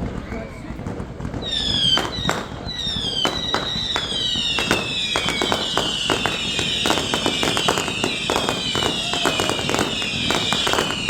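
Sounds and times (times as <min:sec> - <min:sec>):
fireworks bangs and cracks: 0:00.0 - 0:11.0
fireworks whistles falling in pitch: 0:00.0 - 0:11.0.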